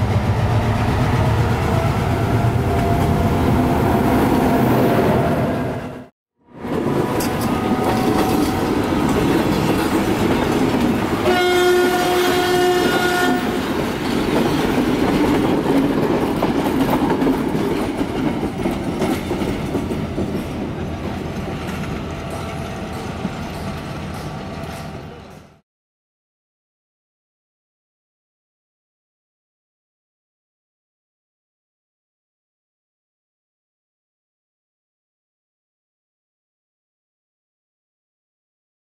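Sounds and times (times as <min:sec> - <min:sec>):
train passing on rails: 0:00.0 - 0:25.6
train horn blast: 0:11.2 - 0:13.7.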